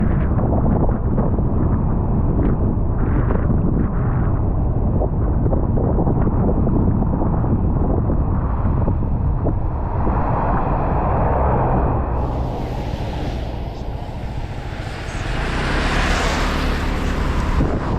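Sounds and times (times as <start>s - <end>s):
wind rumble on microphone: 0.0s - 17.9s
road noise: 6.8s - 17.9s
motorcycle engine: 12.2s - 17.9s.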